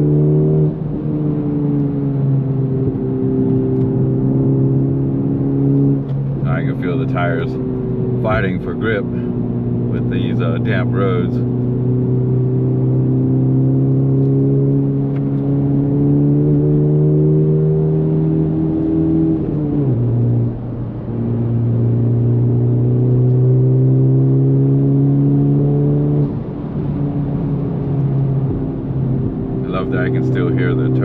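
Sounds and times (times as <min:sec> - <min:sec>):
car engine accelerating: 0:00.0 - 0:31.0.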